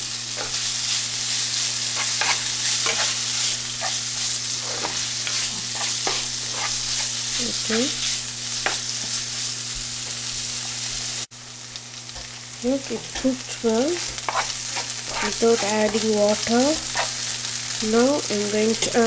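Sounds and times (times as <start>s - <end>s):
chicken sizzling in oil: 0.0s - 19.0s
spatula scraping a pan: 0.4s - 9.5s, 13.1s - 17.7s.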